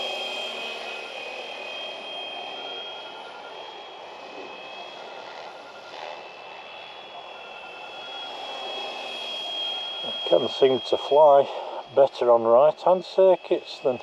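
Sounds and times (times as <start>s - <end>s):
high motor whine: 0.0s - 14.0s.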